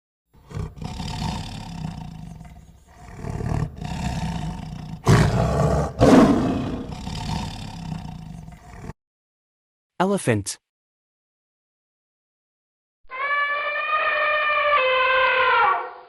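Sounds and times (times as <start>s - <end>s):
tiger growling and roaring: 0.4s - 9.0s.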